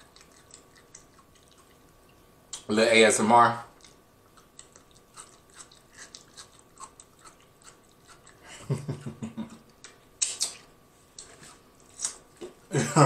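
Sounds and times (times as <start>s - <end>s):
wet mouth clicks: 0.0s - 1.9s, 3.8s - 8.4s, 9.5s - 11.3s
chewing crunchy food: 0.0s - 2.7s, 3.7s - 8.5s.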